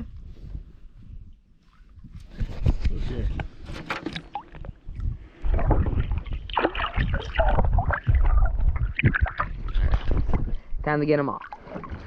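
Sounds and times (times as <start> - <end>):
wind rumbling on microphone: 0.0 - 12.0
water splashing: 3.9 - 12.0.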